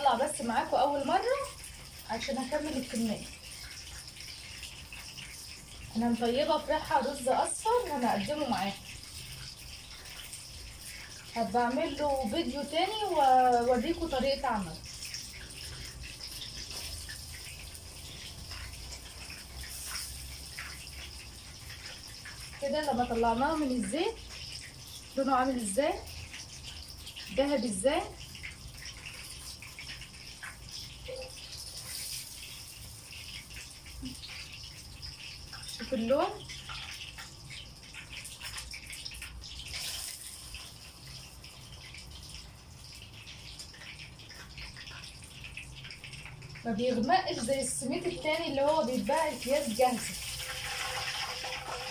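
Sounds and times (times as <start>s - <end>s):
chicken deep-frying in oil: 0.0s - 51.9s
small crackles of frying: 0.0s - 51.9s.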